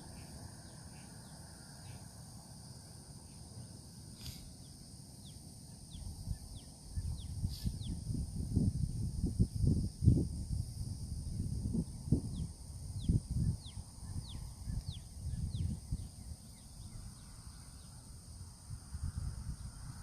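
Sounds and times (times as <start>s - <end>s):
insects droning: 0.0s - 20.0s
wind buffeting microphone: 5.9s - 20.0s.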